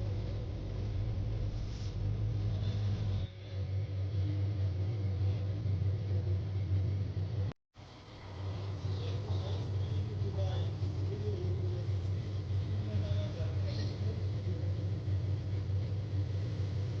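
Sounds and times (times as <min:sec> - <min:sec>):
heavy vehicle engine rumbling: 0:00.0 - 0:03.4.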